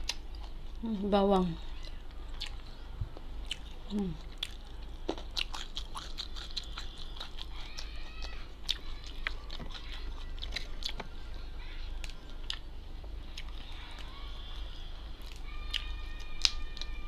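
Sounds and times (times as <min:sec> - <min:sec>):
food crunching: 0:00.0 - 0:12.7, 0:13.3 - 0:17.0
person chewing food: 0:00.0 - 0:17.0.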